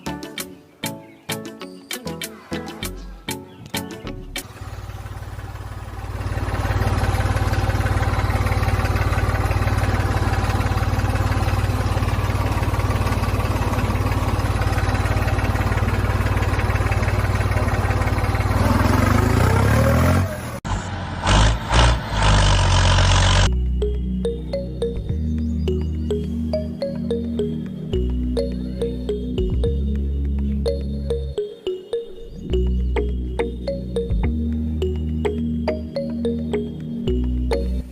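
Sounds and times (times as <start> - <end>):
motor hum: 4.4 - 20.2.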